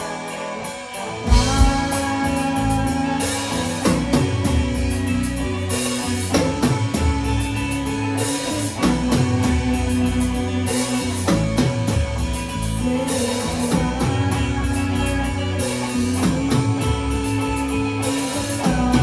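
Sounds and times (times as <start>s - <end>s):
live rock band playing: 0.0s - 19.0s
drum hits: 1.3s - 2.1s.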